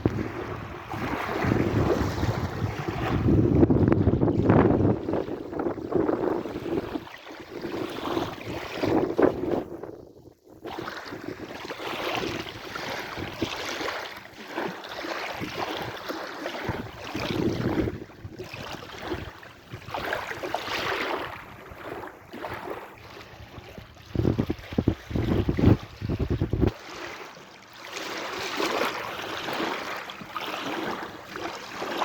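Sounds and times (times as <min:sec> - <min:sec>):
sea waves washing in: 0:00.0 - 0:09.7, 0:10.6 - 0:32.0
wind buffeting microphone: 0:00.0 - 0:13.6, 0:16.6 - 0:26.8.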